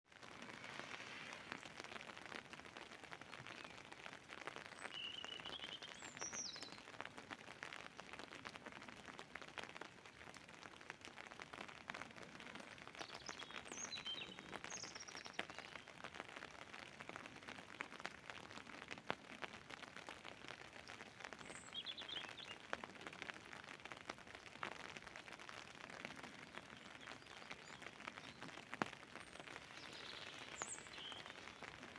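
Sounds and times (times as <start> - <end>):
rain falling steadily: 0.0 - 31.9
bird chirping: 29.2 - 31.9.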